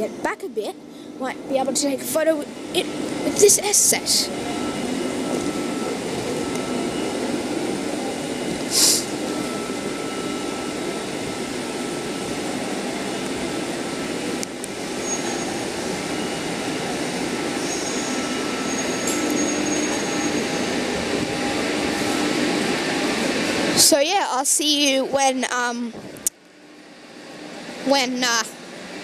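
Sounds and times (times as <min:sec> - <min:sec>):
diesel railcar engine rumble: 0:00.0 - 0:29.0
short hiss: 0:08.7 - 0:09.1.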